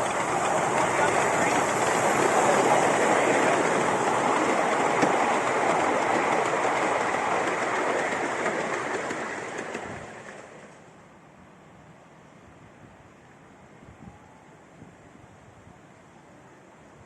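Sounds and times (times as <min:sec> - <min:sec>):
steam train passing: 0:00.0 - 0:12.5.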